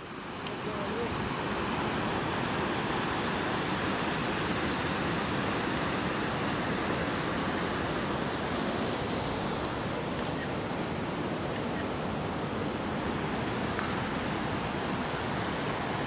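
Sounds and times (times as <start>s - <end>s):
river rapids rushing over rocks: 0.0s - 16.0s.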